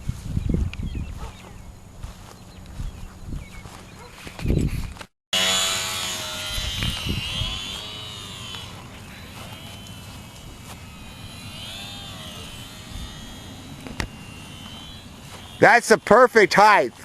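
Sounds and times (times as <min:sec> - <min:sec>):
model airplane motor whining: 0:05.4 - 0:17.0.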